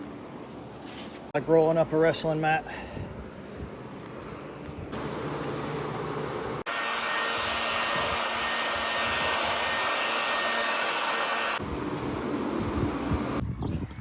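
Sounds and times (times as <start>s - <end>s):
blower rushing air: 4.9s - 13.6s.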